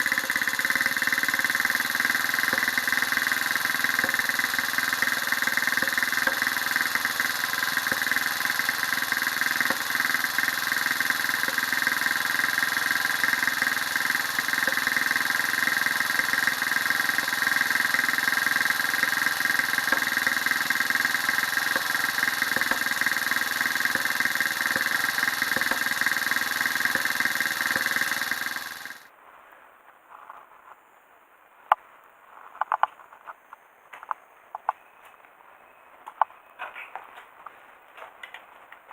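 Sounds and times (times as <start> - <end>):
engine running: 0.0 - 29.1.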